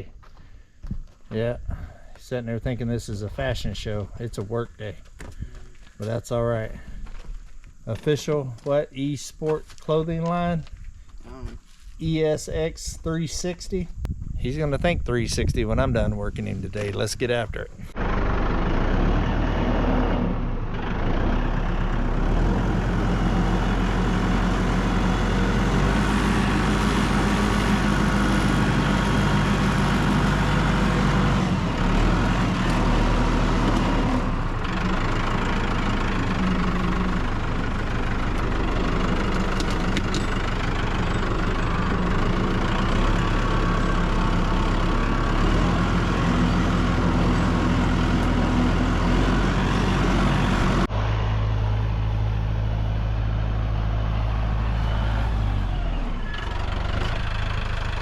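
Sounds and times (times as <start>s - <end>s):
tractor engine running: 15.2s - 58.0s.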